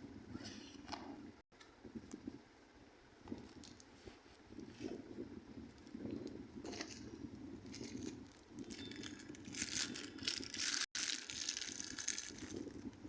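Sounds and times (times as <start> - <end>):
packaging rustling and crinkling: 3.3 - 4.8, 6.7 - 12.9.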